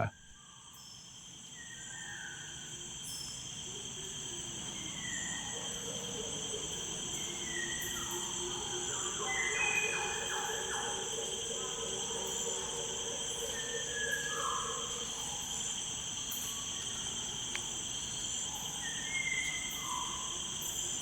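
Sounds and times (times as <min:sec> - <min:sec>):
insect trilling: 0:00.0 - 0:00.2.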